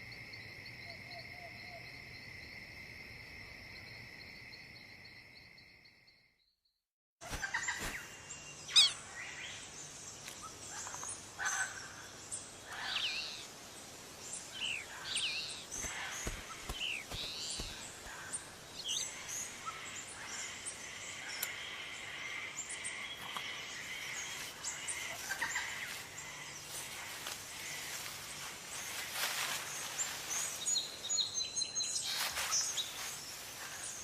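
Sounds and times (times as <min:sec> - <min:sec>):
bird chirps: 0:07.3 - 0:09.7, 0:14.3 - 0:28.1.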